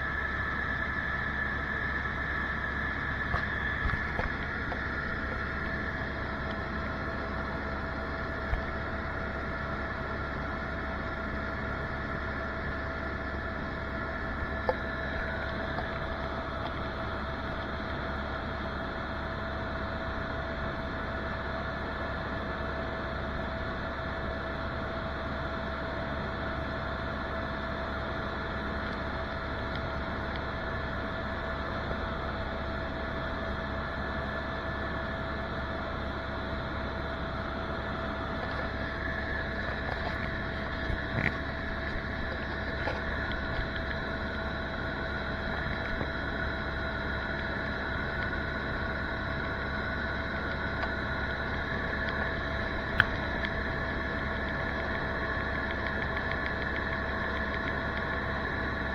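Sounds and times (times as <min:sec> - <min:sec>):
helicopter drone with whine: 0:00.0 - 0:58.9
faint clicks: 0:50.5 - 0:58.6.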